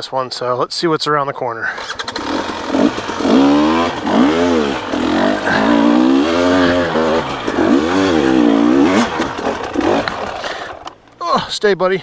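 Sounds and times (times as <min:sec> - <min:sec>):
dirt bike engine revving: 0:01.7 - 0:11.2.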